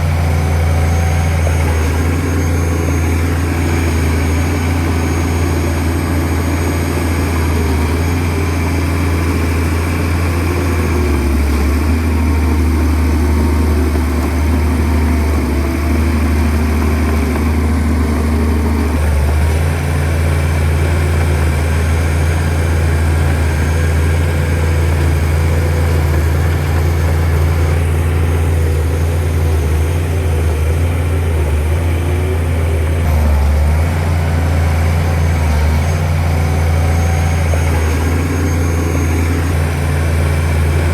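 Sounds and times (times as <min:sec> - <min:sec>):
bulldozer diesel engine running: 0:00.0 - 0:40.9.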